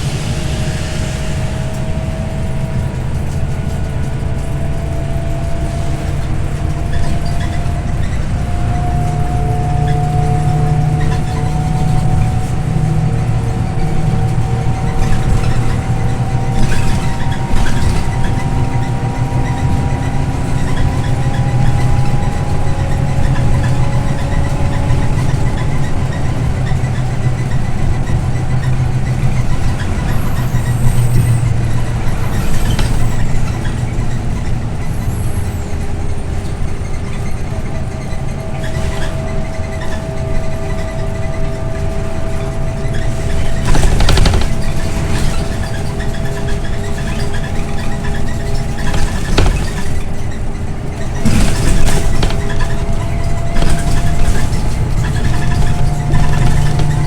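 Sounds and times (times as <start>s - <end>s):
bus engine drone: 0.0s - 57.0s
drivetrain whine: 0.0s - 57.0s
short rattles: 42.4s - 57.0s.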